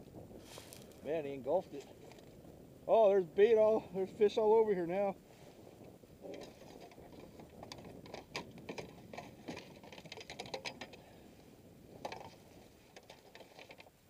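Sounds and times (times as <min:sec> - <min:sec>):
rattle of small knocks: 0:06.2 - 0:11.1, 0:11.9 - 0:14.0.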